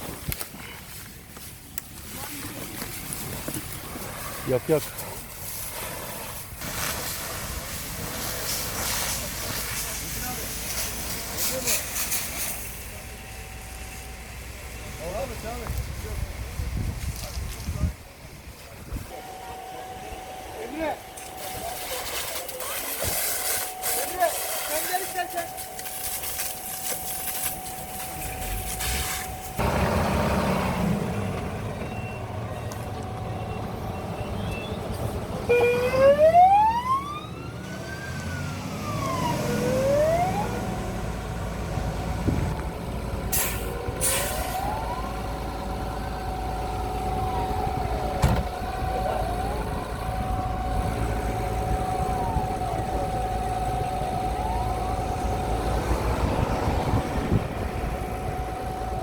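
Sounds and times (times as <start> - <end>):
truck engine running: 0.0 - 59.0
constant whine: 8.0 - 59.0
fire engine siren wailing: 18.9 - 59.0.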